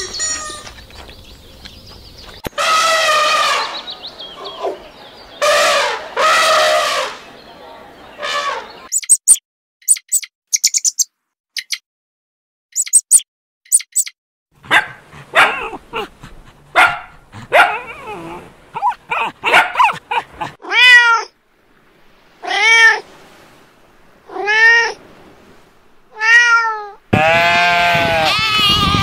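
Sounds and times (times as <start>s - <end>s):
animal calls: 14.6s - 21.0s.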